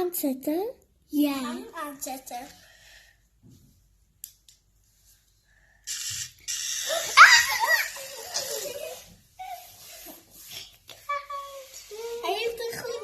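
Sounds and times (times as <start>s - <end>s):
children shrieking and laughing: 6.9s - 9.9s.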